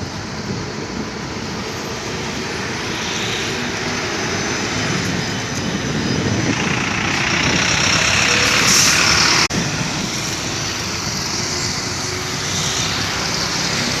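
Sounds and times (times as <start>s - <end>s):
road noise: 0.0s - 14.0s
heavy truck driving past: 4.2s - 14.0s.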